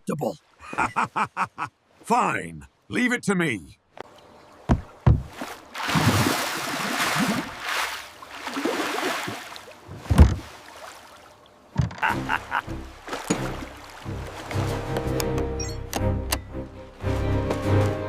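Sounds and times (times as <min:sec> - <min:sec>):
water rushing and splashing: 0:04.0 - 0:15.6, 0:16.7 - 0:18.0
dull thumps: 0:04.6 - 0:05.5, 0:09.3 - 0:10.5.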